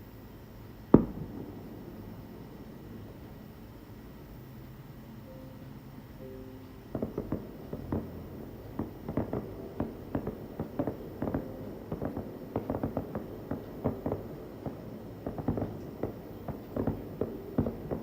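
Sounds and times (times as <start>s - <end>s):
aerial fireworks bursting: 0.9s - 3.8s, 6.9s - 18.0s.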